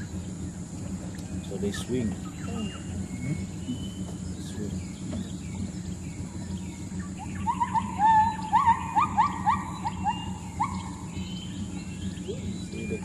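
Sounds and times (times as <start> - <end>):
gibbon whooping calls: 2.3 - 4.0, 7.2 - 11.3
high-pitched drone: 6.2 - 13.0.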